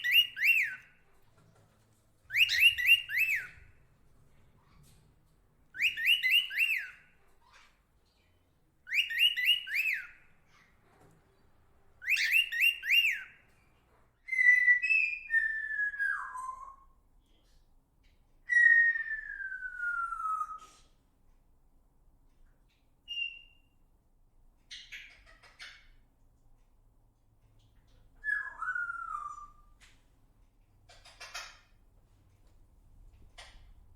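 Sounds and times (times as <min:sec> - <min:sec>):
bird whistling: 0:00.0 - 0:01.0, 0:02.3 - 0:03.8, 0:05.7 - 0:07.6, 0:08.9 - 0:10.3, 0:12.0 - 0:13.4, 0:14.3 - 0:17.0, 0:18.5 - 0:20.8, 0:23.1 - 0:23.8, 0:28.2 - 0:29.8.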